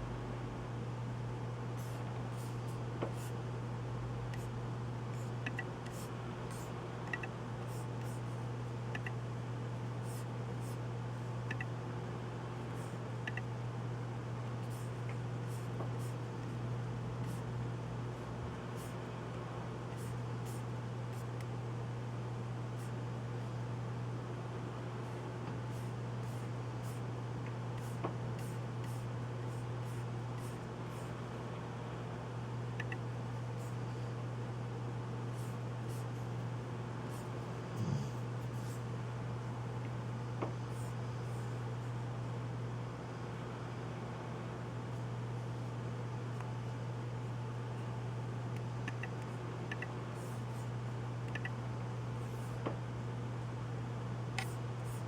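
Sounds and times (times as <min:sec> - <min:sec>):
steady low hum: 0:00.0 - 0:55.0
computer keyboard keystrokes: 0:48.8 - 0:49.9.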